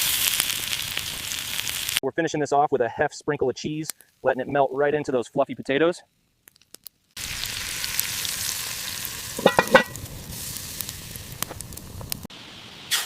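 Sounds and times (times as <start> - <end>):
food sizzling: 0.0 - 2.0, 6.1 - 13.0.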